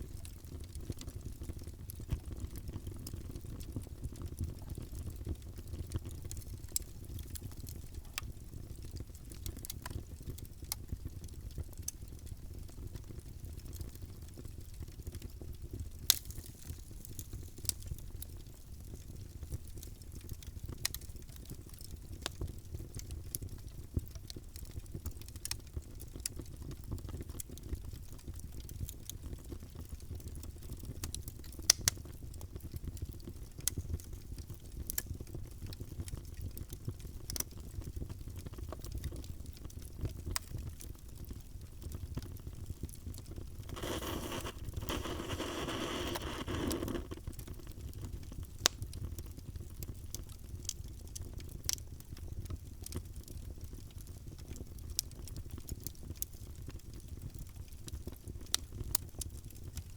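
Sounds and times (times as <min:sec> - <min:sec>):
low rumble of flames: 0:00.0 - 0:59.9
wood fire crackling and popping: 0:00.0 - 0:59.9
fire hissing: 0:43.7 - 0:47.2.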